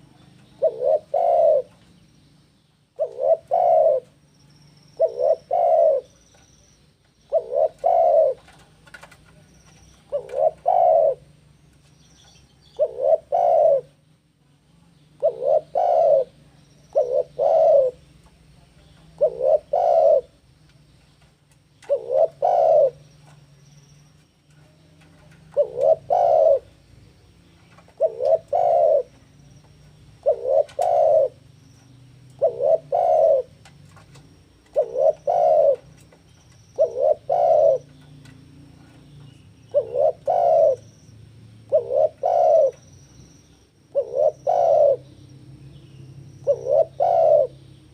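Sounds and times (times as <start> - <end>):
dove cooing: 0.0 - 1.8, 3.0 - 4.2, 5.0 - 6.2, 7.2 - 11.5, 12.7 - 14.0, 15.2 - 18.1, 19.0 - 20.4, 21.8 - 23.1, 24.6 - 26.8, 27.6 - 29.4, 30.2 - 41.0, 41.6 - 42.9, 43.9 - 45.2, 46.2 - 47.7.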